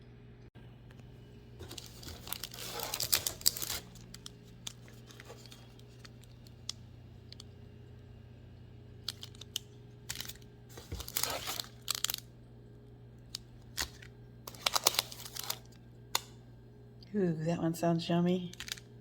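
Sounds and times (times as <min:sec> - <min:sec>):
packaging crinkled and torn: 0:01.6 - 0:06.7, 0:09.0 - 0:12.3, 0:13.2 - 0:15.8, 0:18.5 - 0:18.8.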